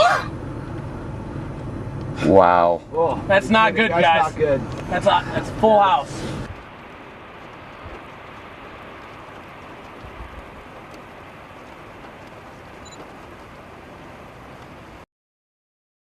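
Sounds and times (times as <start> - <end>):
wind and rain rushing: 2.9 - 15.1.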